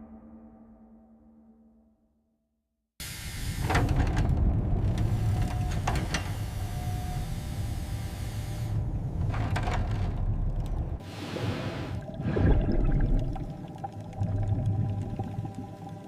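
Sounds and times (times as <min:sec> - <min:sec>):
rushing water: 0:11.0 - 0:16.0.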